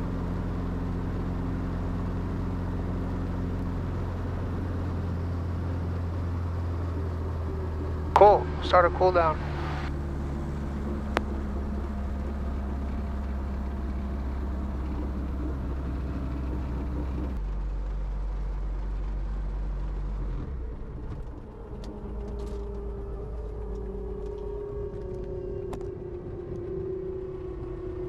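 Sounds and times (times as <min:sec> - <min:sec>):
helicopter engine droning: 0:00.0 - 0:17.4, 0:20.6 - 0:28.0
steady mid-pitched tone: 0:04.4 - 0:17.4.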